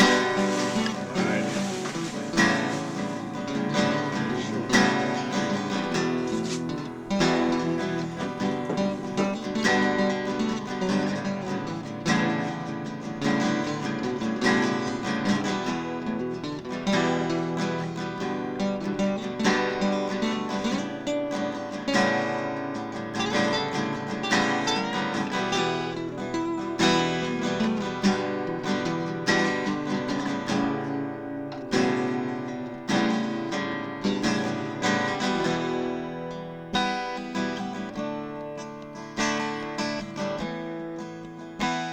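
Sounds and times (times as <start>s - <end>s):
acoustic guitar strummed and plucked: 0.0s - 41.9s.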